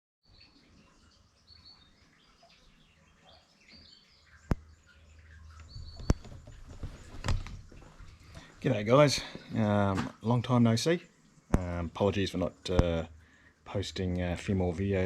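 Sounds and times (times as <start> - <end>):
small birds chirping: 0.2 - 9.7.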